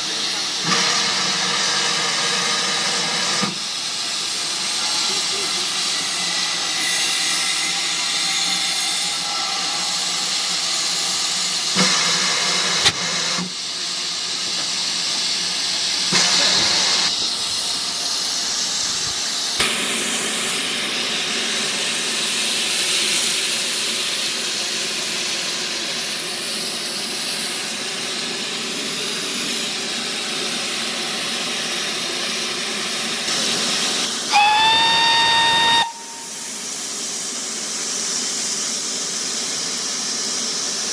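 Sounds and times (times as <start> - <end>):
steam locomotive hissing: 0.0 - 40.9
steam whistle blast: 34.3 - 36.9.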